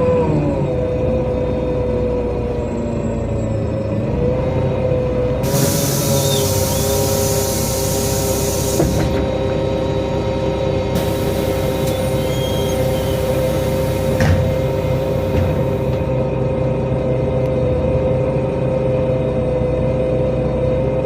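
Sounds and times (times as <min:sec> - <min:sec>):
bus engine whine: 0:00.0 - 0:21.0
long high hiss: 0:05.4 - 0:08.8, 0:11.0 - 0:15.8.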